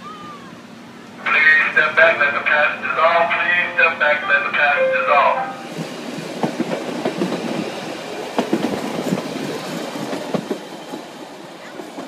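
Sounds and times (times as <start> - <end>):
train wheels clattering on rails: 5.6 - 12.0.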